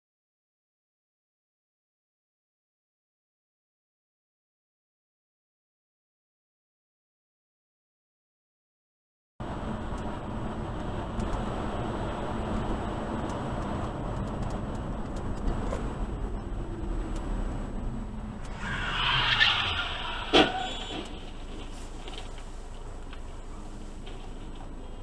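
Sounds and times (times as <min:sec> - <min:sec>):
car driving rumble: 0:09.4 - 0:25.0
brief squeal: 0:18.5 - 0:21.2.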